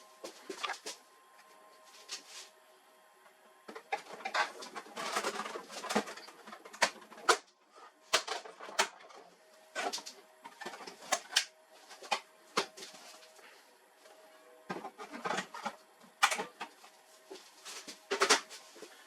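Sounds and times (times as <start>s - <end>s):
printer parts clicking and scraping: 3.7s - 7.5s, 8.1s - 13.1s, 14.7s - 16.8s, 17.8s - 18.5s.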